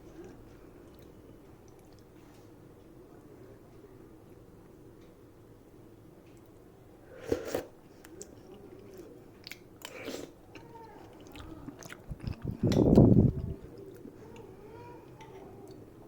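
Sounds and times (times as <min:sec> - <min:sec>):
crunchy chewing: 0:07.2 - 0:14.5.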